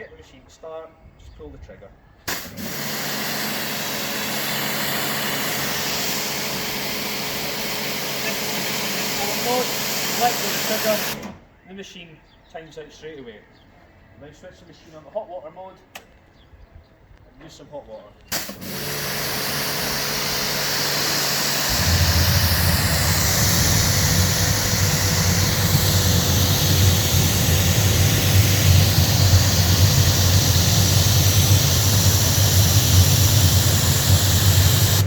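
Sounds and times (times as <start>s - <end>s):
pressure washer spray hiss: 2.3s - 11.2s, 18.3s - 35.0s
burner deep rumble: 19.2s - 35.0s.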